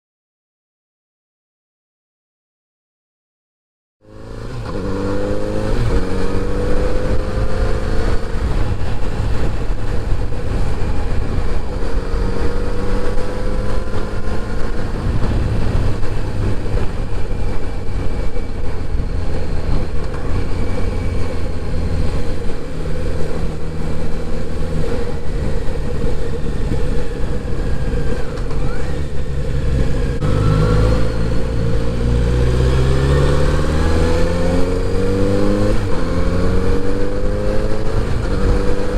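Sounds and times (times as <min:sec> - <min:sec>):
motorcycle engine revving: 0:04.0 - 0:38.9
road and wind noise: 0:04.0 - 0:38.9.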